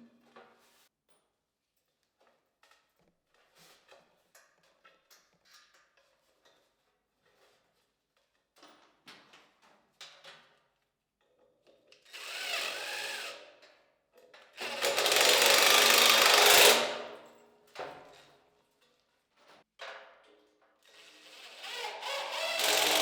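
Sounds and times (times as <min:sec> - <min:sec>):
power drill running: 0:12.1 - 0:13.3, 0:14.6 - 0:16.9, 0:21.3 - 0:23.0.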